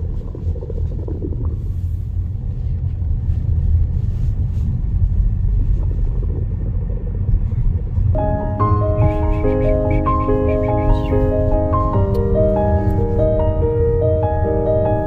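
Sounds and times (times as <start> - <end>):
car cabin road rumble: 0.0 - 15.0
music with sustained notes: 8.2 - 15.0.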